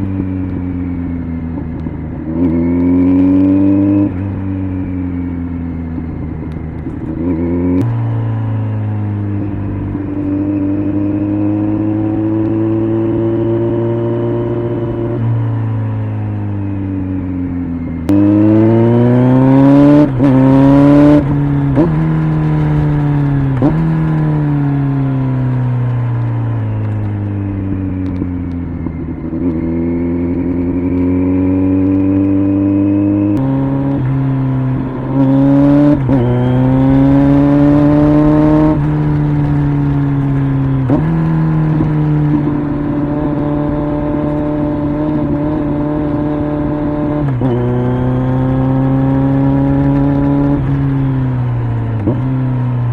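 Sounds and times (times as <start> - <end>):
motorcycle engine revving: 0.0 - 52.9
gear changes: 14.5 - 52.9.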